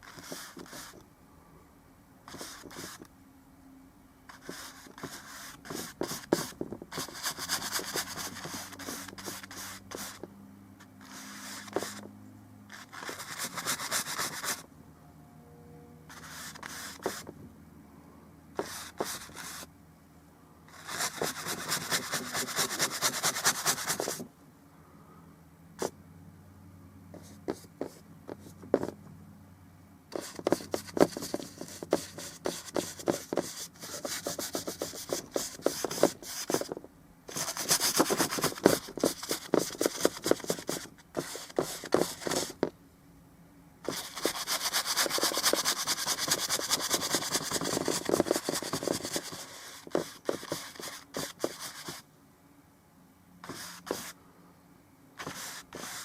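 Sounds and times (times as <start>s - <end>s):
paintbrush scrubbing on canvas: 4.3s - 10.3s, 11.0s - 12.1s, 53.4s - 54.1s, 55.2s - 56.0s.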